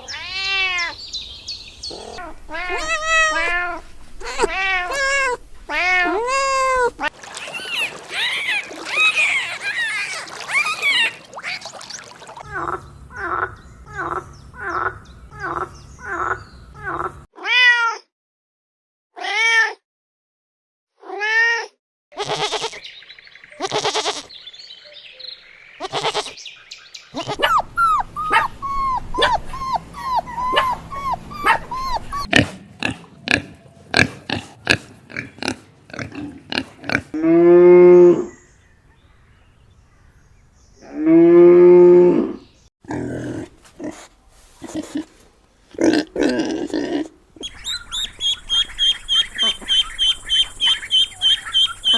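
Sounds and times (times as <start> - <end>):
drawn-out falling animal calls: 0.0 - 17.3, 25.8 - 26.4, 27.2 - 34.8, 47.4 - 51.9
short animal calls: 1.9 - 11.1
cow mooing: 2.1 - 7.1.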